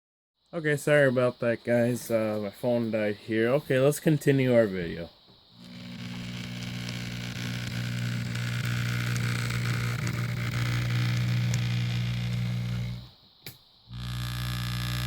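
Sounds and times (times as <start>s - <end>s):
model train motor drone: 5.6s - 13.1s, 13.9s - 15.0s.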